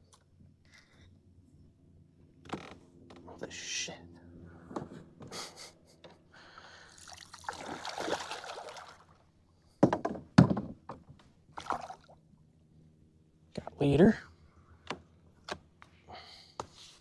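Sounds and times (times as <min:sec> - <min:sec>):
water splashing beside a kayak: 0:06.9 - 0:09.3, 0:11.5 - 0:12.2
knocks on a kayak: 0:09.8 - 0:11.1.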